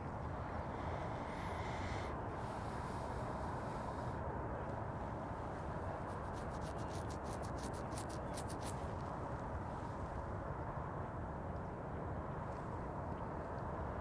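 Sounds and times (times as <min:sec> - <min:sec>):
low background rumble: 0:00.0 - 0:04.2
high dry ticks: 0:05.9 - 0:08.9.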